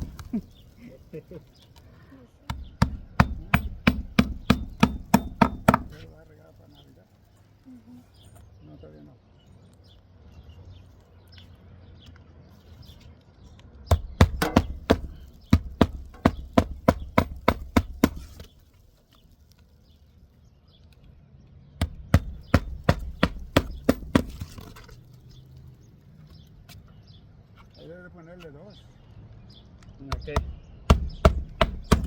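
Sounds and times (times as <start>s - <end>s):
hammer nailing: 2.5s - 6.1s, 13.9s - 18.5s, 21.8s - 24.7s, 30.1s - 32.0s.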